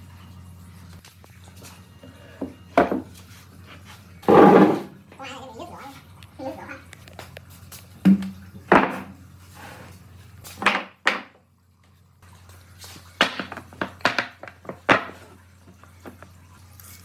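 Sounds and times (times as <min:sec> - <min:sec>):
hard objects knocking and clattering: 0:02.8 - 0:03.1, 0:04.2 - 0:04.9, 0:10.6 - 0:11.4, 0:13.2 - 0:15.2.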